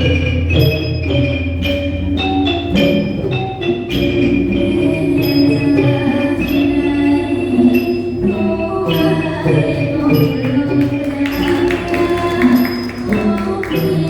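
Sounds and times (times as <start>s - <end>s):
bright metallic percussion strikes: 0.0s - 14.0s
sustained melodic notes: 0.0s - 14.0s.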